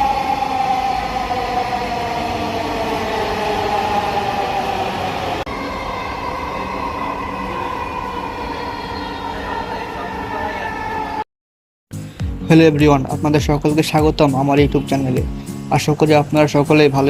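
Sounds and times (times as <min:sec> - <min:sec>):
train hum: 0:00.0 - 0:11.2
train motor whine: 0:00.0 - 0:11.2.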